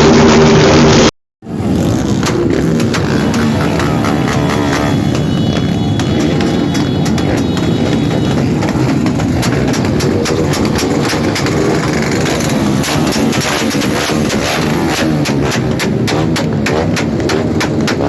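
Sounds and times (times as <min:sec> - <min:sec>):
motorcycle engines running: 0:00.0 - 0:18.0.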